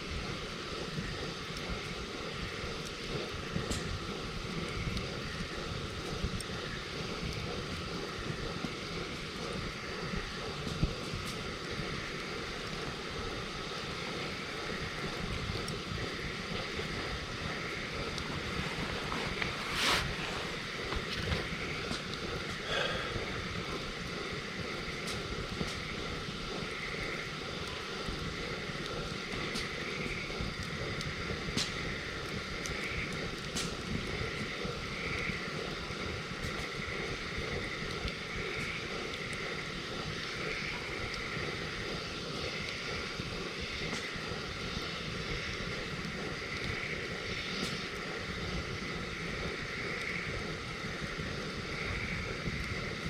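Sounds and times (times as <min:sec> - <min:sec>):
campfire rushing noise: 0:00.0 - 0:53.0
fire crackles: 0:00.0 - 0:53.0
steady low rumble: 0:00.0 - 0:53.0
sharp fire pops: 0:31.5 - 0:31.9, 0:32.6 - 0:34.6.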